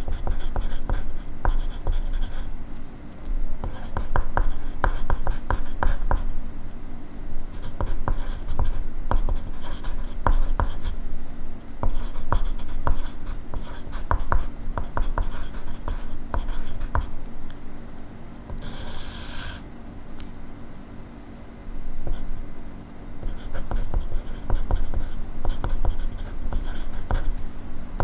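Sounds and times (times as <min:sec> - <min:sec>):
pencil scratching on paper: 0:00.0 - 0:02.5, 0:03.6 - 0:06.2, 0:11.8 - 0:17.2, 0:18.5 - 0:19.6, 0:23.2 - 0:27.3.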